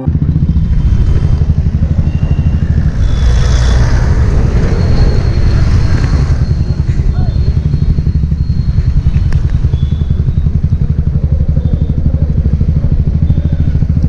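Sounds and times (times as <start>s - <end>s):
motorcycle engine thumping: 5.2s - 14.0s.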